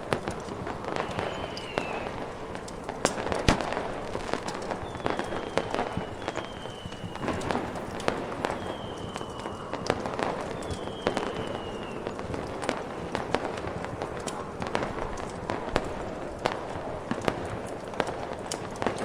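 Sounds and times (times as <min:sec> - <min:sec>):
sharp cracks and pops: 0:00.0 - 0:19.0
faint falling whistles: 0:00.8 - 0:02.6, 0:04.5 - 0:13.2.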